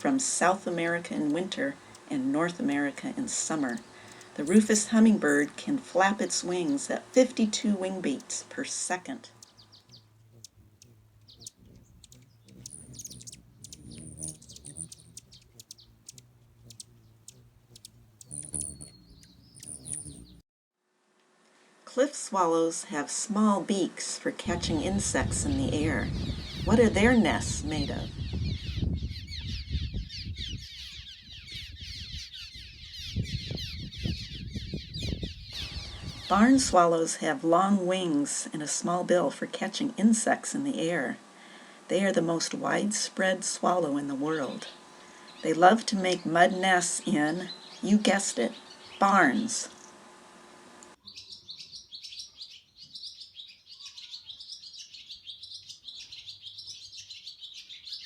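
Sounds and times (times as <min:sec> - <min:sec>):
swallows chirping: 0:00.0 - 0:20.4, 0:25.5 - 0:36.8, 0:44.3 - 0:50.0, 0:51.0 - 0:58.0.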